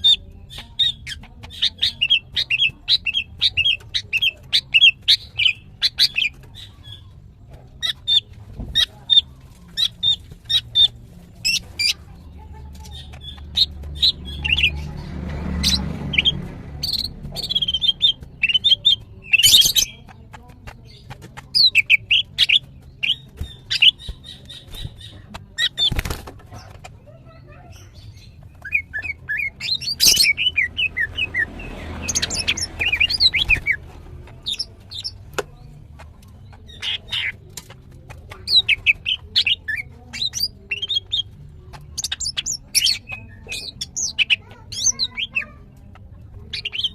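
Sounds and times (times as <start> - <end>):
bird chirping and whistling: 15.6 - 20.0, 27.8 - 33.8.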